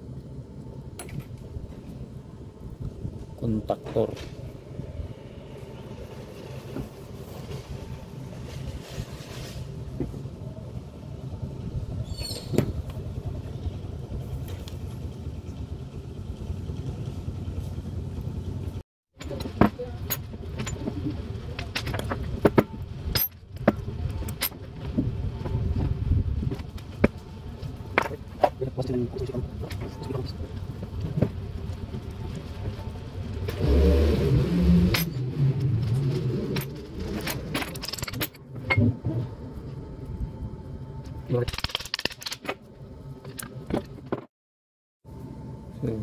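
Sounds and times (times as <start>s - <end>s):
low background rumble: 0.0s - 41.5s
metal parts clinking: 36.4s - 38.4s, 41.4s - 42.5s.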